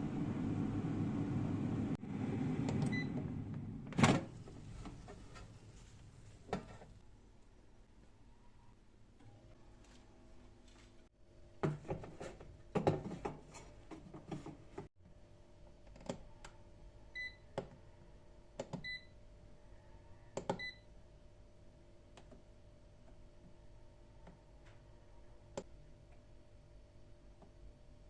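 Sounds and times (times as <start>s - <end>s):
appliance button beeps: 2.7s - 3.2s, 20.5s - 20.8s.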